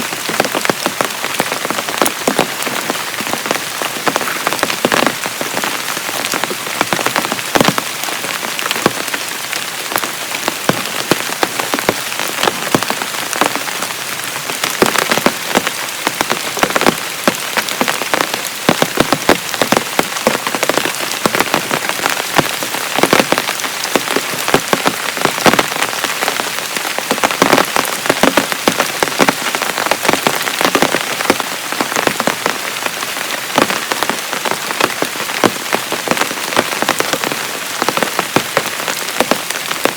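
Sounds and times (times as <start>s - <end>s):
heavy rain hissing: 0.0s - 39.9s
raindrops pattering on a surface: 0.0s - 39.9s.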